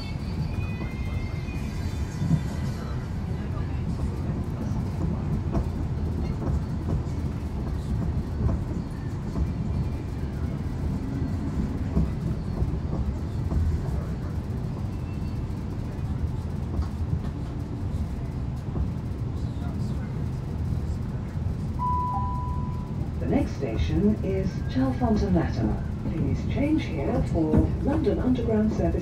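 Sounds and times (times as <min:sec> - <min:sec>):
train rumble from inside carriage: 0:00.0 - 0:29.0.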